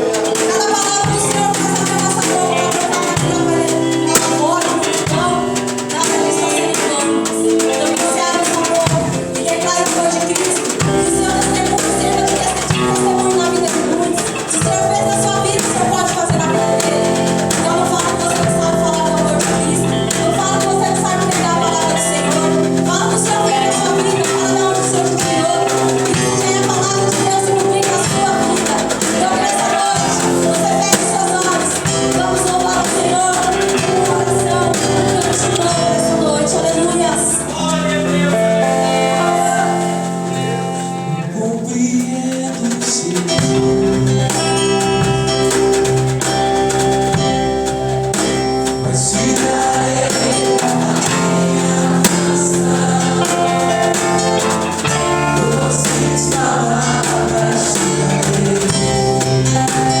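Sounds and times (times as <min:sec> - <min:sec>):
percussion beat: 0:00.0 - 0:41.0, 0:42.1 - 1:00.0
gospel singing: 0:00.0 - 1:00.0.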